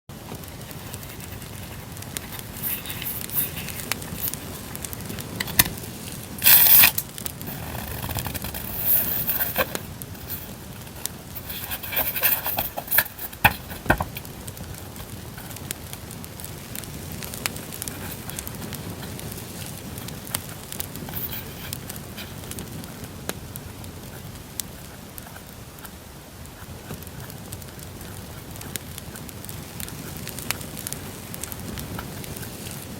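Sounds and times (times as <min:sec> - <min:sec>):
campfire crackling: 0:00.1 - 0:32.9
paper packaging rustling: 0:00.6 - 0:15.6.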